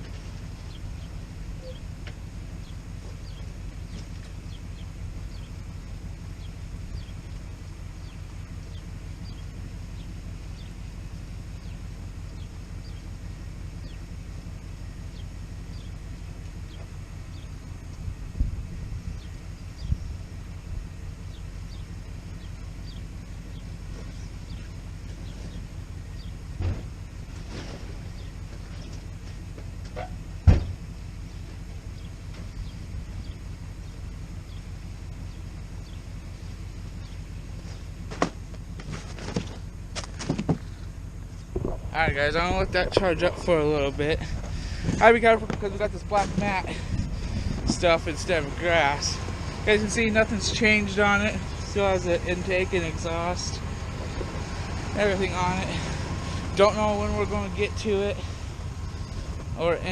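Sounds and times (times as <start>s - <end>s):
low outdoor rumble: 0.0s - 59.9s
small bird chirping: 0.1s - 10.8s, 11.5s - 14.1s, 14.8s - 18.0s, 19.0s - 20.3s, 21.2s - 26.5s, 28.0s - 29.1s, 30.0s - 37.9s
sharp thump: 26.6s - 27.0s, 30.4s - 30.8s.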